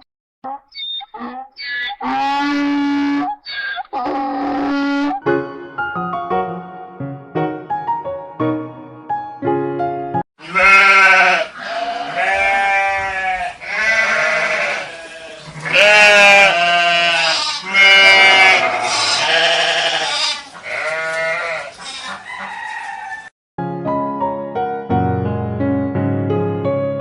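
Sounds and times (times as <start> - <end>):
sheep bleating: 1.2 - 5.2, 10.4 - 22.3.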